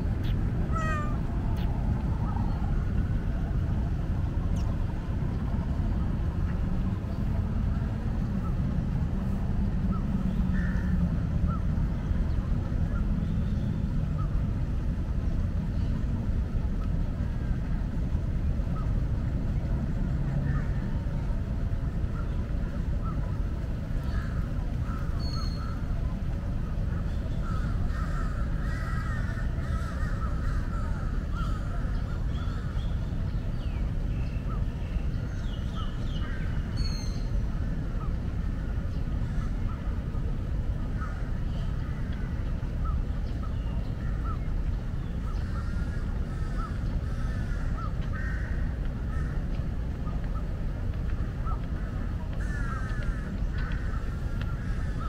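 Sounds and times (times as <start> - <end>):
birds chirping: 0.0 - 2.8, 40.8 - 55.0
steady low rumble: 0.0 - 55.0.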